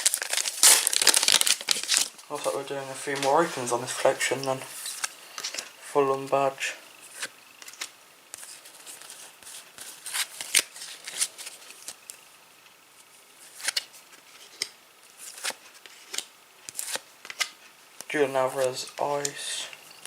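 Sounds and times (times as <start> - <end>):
trading cards rustling and snapping: 0.0 - 2.2, 7.1 - 12.2, 13.4 - 17.6.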